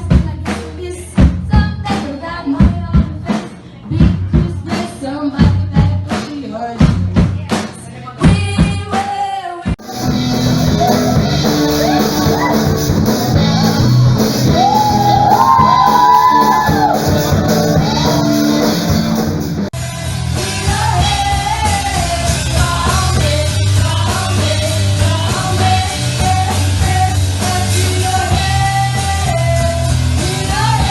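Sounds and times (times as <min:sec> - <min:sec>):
drum hits: 0:09.8 - 0:19.7
person singing over a band: 0:10.7 - 0:19.0.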